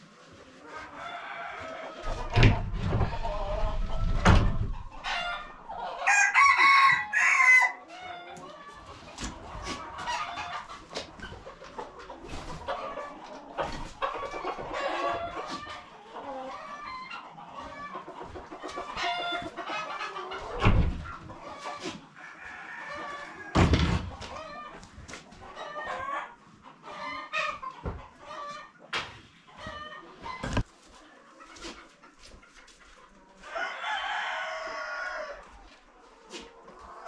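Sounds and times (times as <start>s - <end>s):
chickens clucking: 0.0s - 37.0s
rooster crowing: 6.0s - 7.8s, 33.5s - 35.4s.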